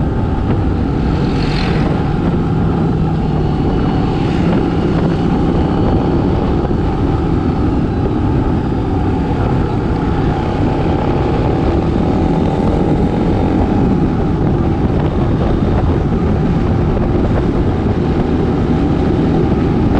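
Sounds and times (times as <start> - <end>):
motorcycle engines rumbling: 0.0 - 19.9
road noise: 0.0 - 19.9
motorbikes accelerating past: 0.1 - 15.1.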